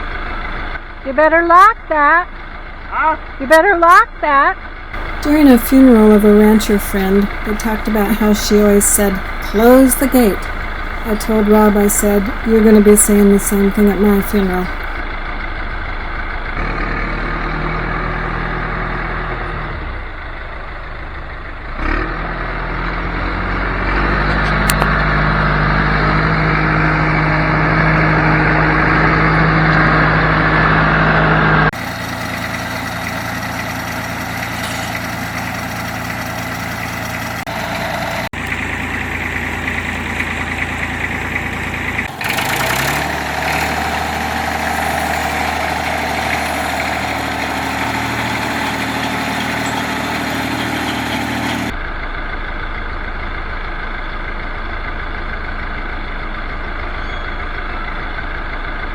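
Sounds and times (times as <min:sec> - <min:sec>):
tractor engine running: 0:05.0 - 0:15.0, 0:31.8 - 0:58.9
diesel engine idling: 0:05.0 - 0:16.5, 0:31.8 - 0:58.9.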